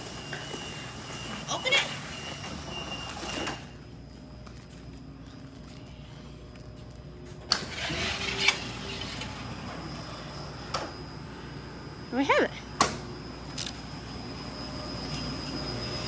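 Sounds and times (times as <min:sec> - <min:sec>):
motorized door humming: 0:00.0 - 0:04.1, 0:07.2 - 0:16.0.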